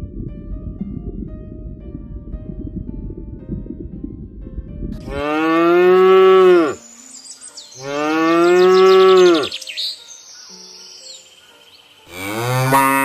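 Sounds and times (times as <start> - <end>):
low rough rumble: 0.0 - 6.4
cow mooing: 5.1 - 6.8, 12.1 - 13.0.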